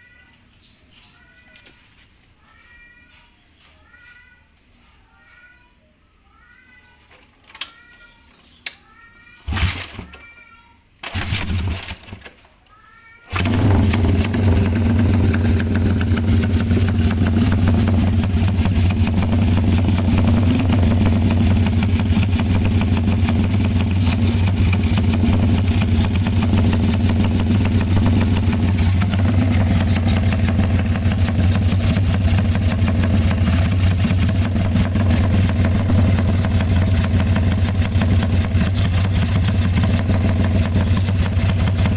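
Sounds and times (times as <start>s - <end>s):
motorcycle engine starting: 9.4s - 10.2s, 11.0s - 12.3s, 13.3s - 41.9s
motorcycle engine idling: 13.3s - 41.9s.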